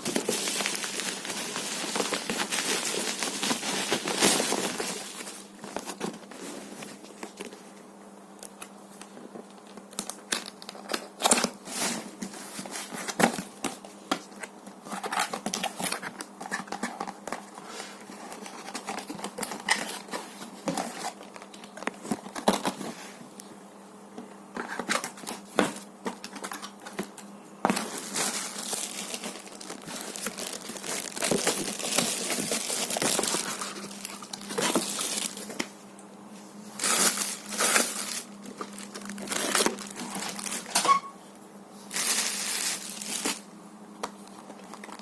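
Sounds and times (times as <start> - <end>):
packaging tearing: 0.0 - 5.5, 28.0 - 35.6, 36.8 - 40.8, 41.9 - 43.4
plastic and paper crinkling: 0.0 - 7.7, 8.9 - 23.2, 24.5 - 35.8, 36.7 - 40.9, 41.9 - 45.0.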